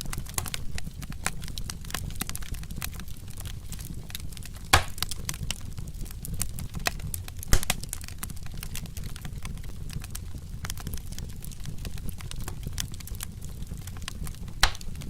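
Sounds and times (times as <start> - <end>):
wood fire crackling: 0.0 - 15.0
loud pops: 4.7 - 5.1, 7.5 - 7.8, 14.6 - 15.0.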